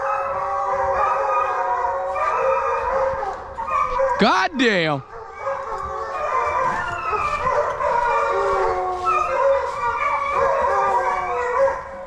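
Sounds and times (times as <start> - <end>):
hounds baying: 0.0 - 12.0.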